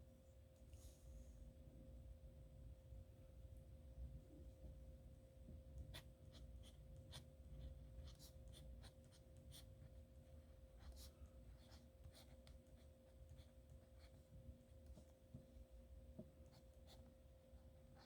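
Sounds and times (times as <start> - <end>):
pen scratching on paper: 5.9 - 9.9, 10.8 - 14.2.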